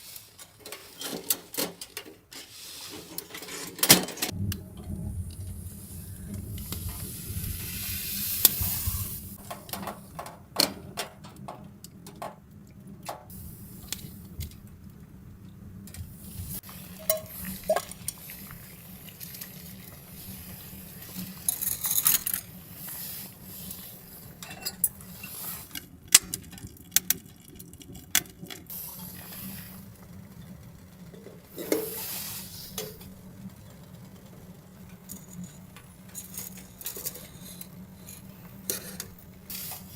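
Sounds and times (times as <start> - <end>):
soft sizzle: 0.0 - 3.6, 4.2 - 39.9
metal utensil scraping a pot: 16.8 - 18.2, 35.1 - 39.9.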